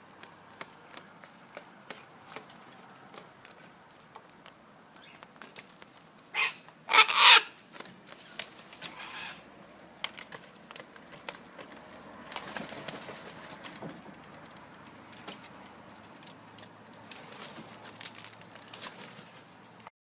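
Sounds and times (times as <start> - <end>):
beak clicking and tapping on food: 0.0 - 6.8, 9.9 - 19.0.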